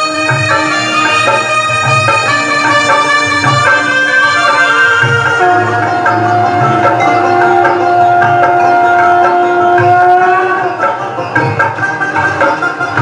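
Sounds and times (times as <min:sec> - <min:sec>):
saxophone melody: 0:00.0 - 0:13.0
tabla: 0:00.0 - 0:13.0.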